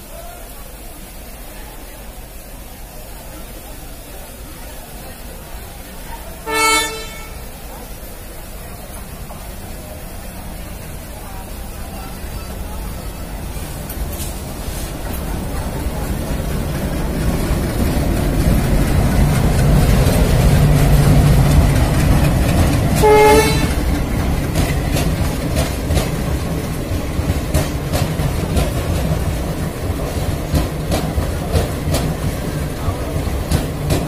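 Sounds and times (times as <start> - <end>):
train horn blast: 6.4 - 7.6, 23.0 - 24.0
wheels clattering over rail joints: 12.2 - 34.0.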